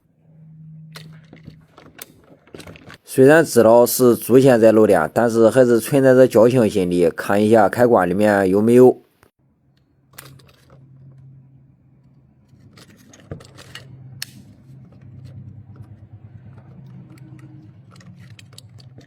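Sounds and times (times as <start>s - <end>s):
low electrical hum: 0.0s - 8.6s.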